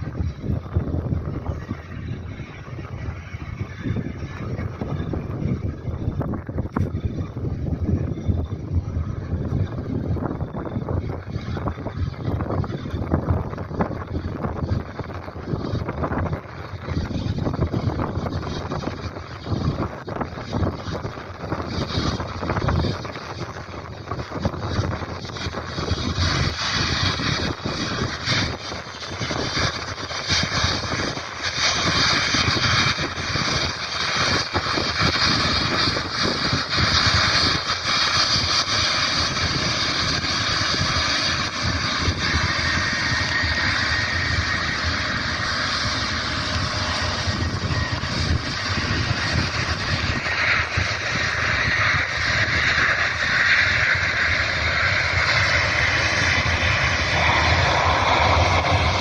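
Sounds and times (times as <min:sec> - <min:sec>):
jet engine whine: 0:00.0 - 0:59.0
jet engines running: 0:00.0 - 0:59.0
wind buffeting microphone: 0:00.0 - 0:59.0.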